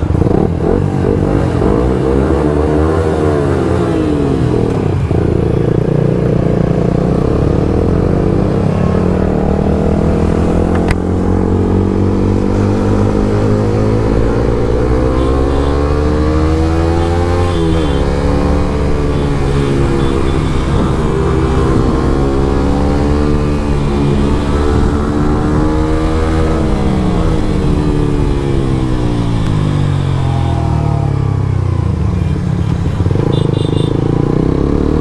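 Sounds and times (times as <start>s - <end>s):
motorcycle engines revving: 0.0s - 35.0s.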